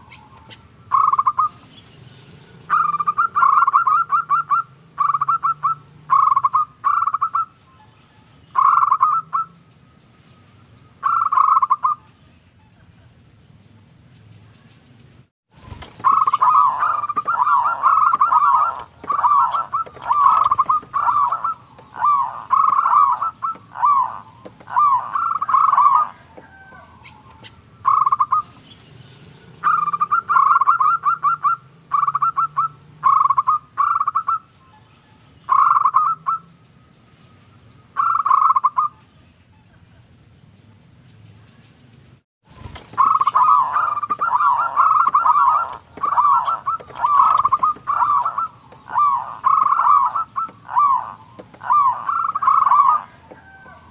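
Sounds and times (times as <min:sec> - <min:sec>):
dove cooing: 0:00.0 - 0:01.5, 0:02.7 - 0:07.6, 0:08.6 - 0:09.6, 0:11.0 - 0:12.0, 0:15.7 - 0:28.4, 0:29.6 - 0:34.5, 0:35.5 - 0:36.5, 0:42.6 - 0:53.9.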